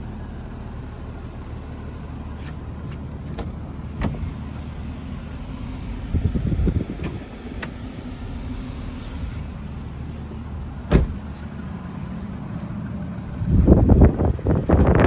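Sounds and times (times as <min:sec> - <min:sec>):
car engine idling: 0:00.0 - 0:15.0
gusty noise: 0:05.4 - 0:11.2.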